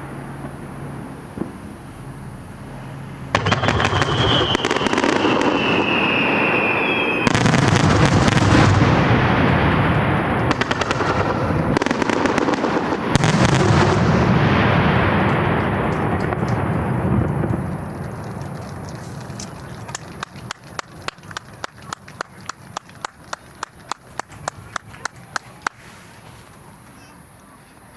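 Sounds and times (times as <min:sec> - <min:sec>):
fireworks banging and crackling: 0:00.0 - 0:27.8
falling whistling tone: 0:03.4 - 0:07.5.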